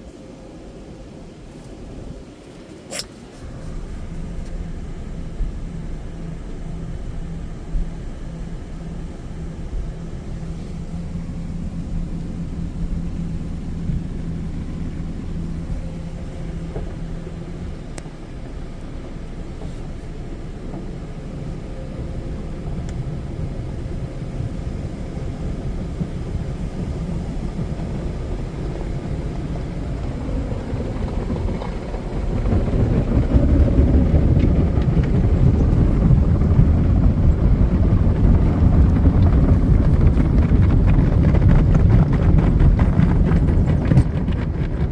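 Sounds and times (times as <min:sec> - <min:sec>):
car wash equipment rumbling: 0:00.0 - 0:44.9.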